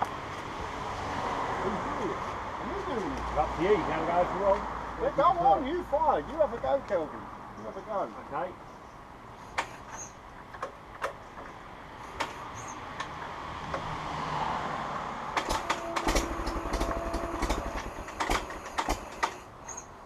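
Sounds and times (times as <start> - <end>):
tractor engine firing: 15.3 - 19.5
tractor engine hand-cranked: 15.4 - 19.9.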